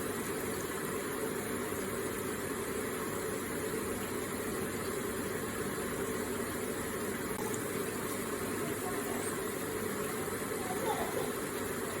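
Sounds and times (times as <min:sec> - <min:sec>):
falling water flowing: 0:00.0 - 0:12.0.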